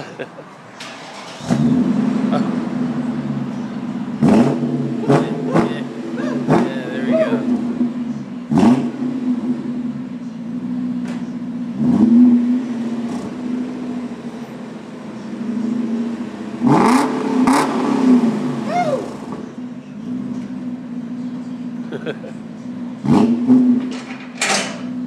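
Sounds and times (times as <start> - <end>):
car engine idling and revving: 0.0 - 25.0.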